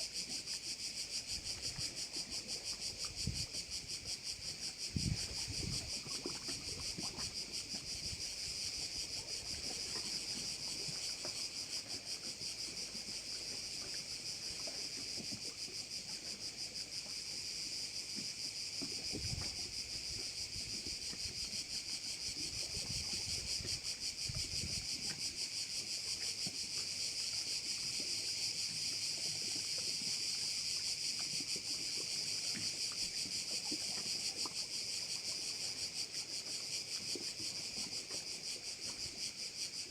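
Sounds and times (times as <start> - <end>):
insects chorus buzzing: 0.0 - 39.9
wind rumble on microphone: 3.0 - 9.7, 19.0 - 21.5, 22.3 - 25.1.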